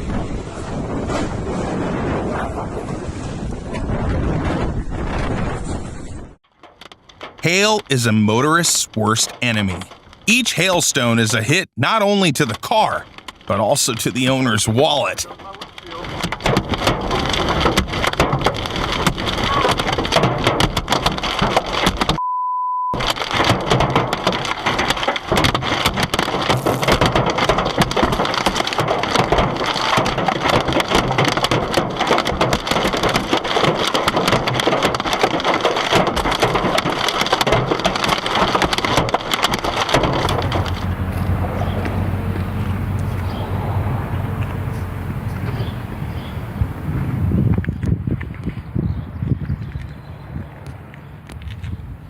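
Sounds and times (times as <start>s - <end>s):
hailstones pelting a car: 12.6s - 22.2s, 23.0s - 47.6s
short beep tone: 22.2s - 23.0s.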